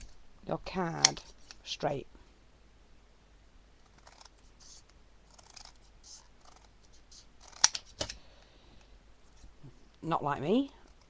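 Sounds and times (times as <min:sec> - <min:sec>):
scissors cutting card: 0:04.0 - 0:08.2.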